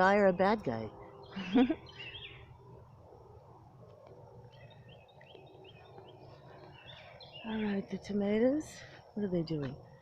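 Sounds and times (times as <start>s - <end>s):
small birds chirping: 0.0s - 3.1s, 4.3s - 10.0s.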